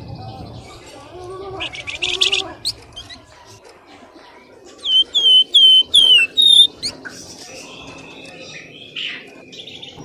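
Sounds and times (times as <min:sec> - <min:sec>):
high whistled bird notes: 0:04.8 - 0:06.7
bird chirps: 0:04.8 - 0:06.8.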